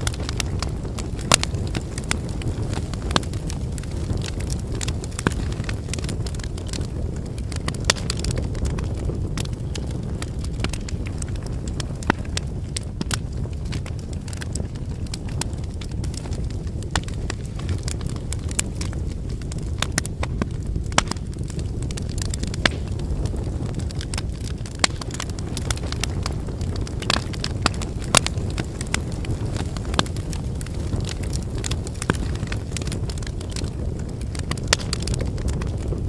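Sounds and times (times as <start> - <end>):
firewood crackling and popping: 0.0 - 36.0
low rumble of flames: 0.0 - 36.0.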